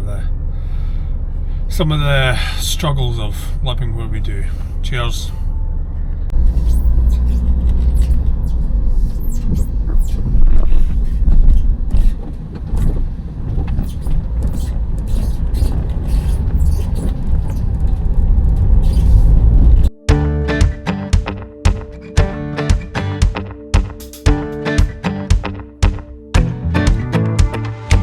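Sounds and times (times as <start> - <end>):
van engine and road rumble: 0.0 - 20.0.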